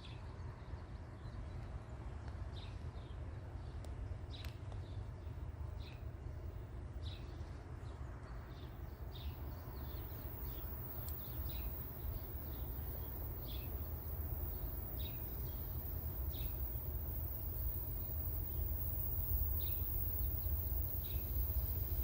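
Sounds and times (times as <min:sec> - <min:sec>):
songbird chirping: 0:07.0 - 0:22.0.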